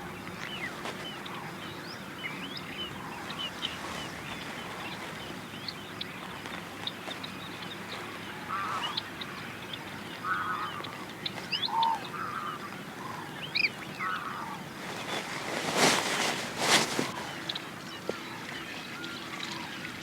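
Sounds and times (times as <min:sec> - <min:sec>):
small birds chirping: 0:00.0 - 0:19.1
birds honking: 0:00.7 - 0:11.0, 0:14.0 - 0:19.0.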